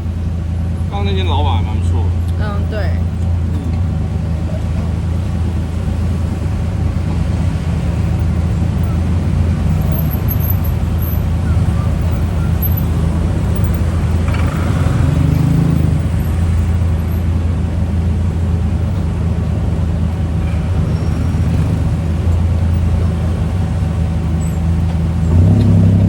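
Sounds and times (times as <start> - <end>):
moving car rumble and road noise: 0.0 - 26.0.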